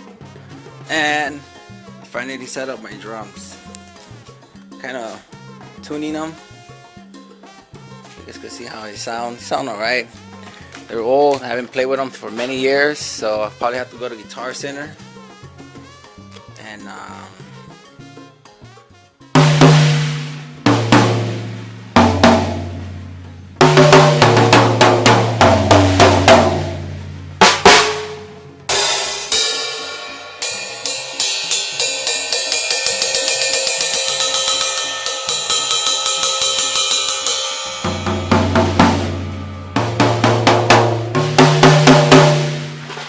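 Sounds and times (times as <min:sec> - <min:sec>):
low drum hits: 0:19.4 - 0:31.0, 0:37.6 - 0:43.0
cymbal crash: 0:19.4 - 0:43.0.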